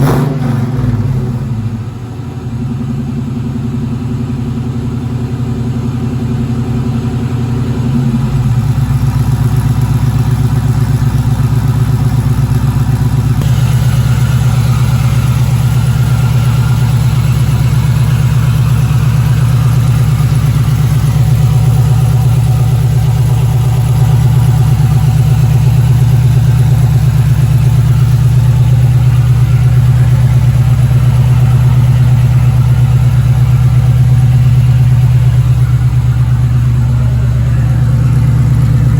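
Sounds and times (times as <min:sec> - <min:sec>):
engine exhaust pulsing: 0:00.0 - 0:38.9.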